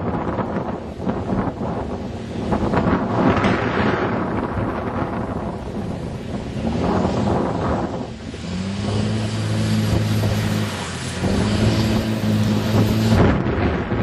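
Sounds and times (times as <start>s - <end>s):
diesel engine revving: 2.6s - 14.0s
rushing hiss: 6.8s - 13.3s.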